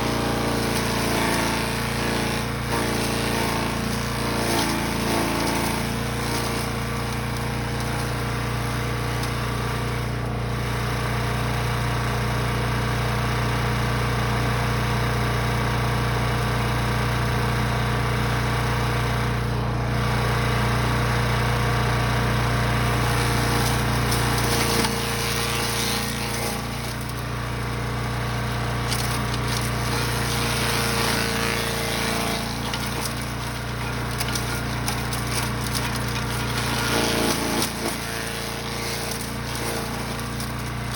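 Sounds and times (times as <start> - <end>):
wood chipper engine running: 0.0 - 40.9
crackling and rattling of material: 2.4 - 9.4, 23.0 - 40.9.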